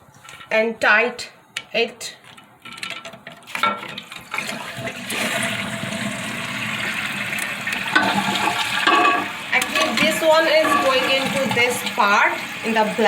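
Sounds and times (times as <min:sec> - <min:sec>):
water rushing in toilet tank: 0:03.5 - 0:13.0.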